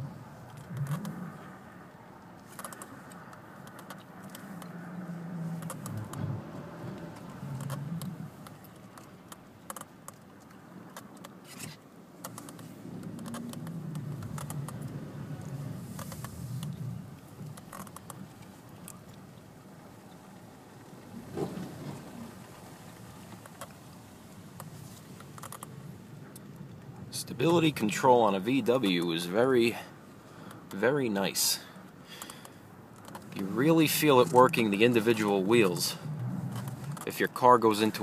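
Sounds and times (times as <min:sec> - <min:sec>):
light clicks and rattles: 0:02.2 - 0:04.8, 0:05.6 - 0:29.2, 0:31.6 - 0:38.0
car engine at low revs: 0:02.8 - 0:09.6, 0:12.2 - 0:28.9.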